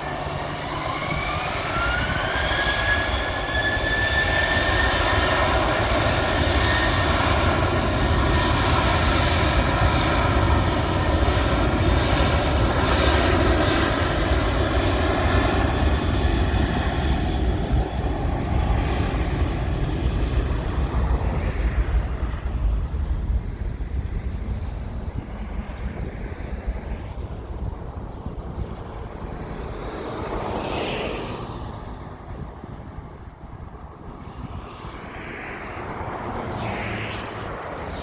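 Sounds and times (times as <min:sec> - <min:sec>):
jet engines with high fan whine: 0:00.0 - 0:38.0.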